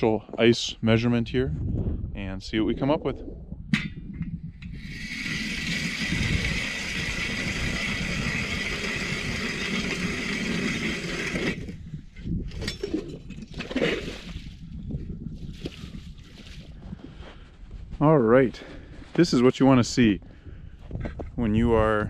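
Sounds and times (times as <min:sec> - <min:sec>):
power ice auger whining: 0:04.8 - 0:11.8
ice chips scraping and knocking: 0:04.9 - 0:11.7, 0:12.6 - 0:14.6.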